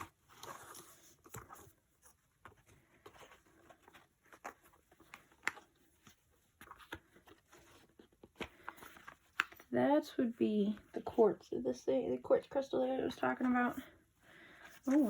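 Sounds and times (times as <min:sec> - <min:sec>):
soft rustles: 0:00.0 - 0:09.8, 0:13.4 - 0:15.0.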